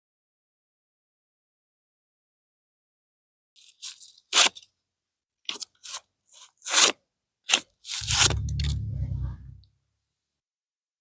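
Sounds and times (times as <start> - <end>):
low rumble: 8.0 - 9.7.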